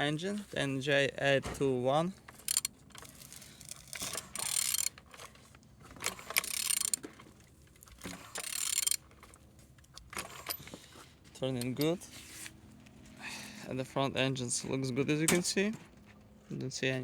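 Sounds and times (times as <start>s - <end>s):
ratchet clicking and rasping: 2.3s - 5.3s, 6.0s - 9.2s, 11.5s - 12.0s.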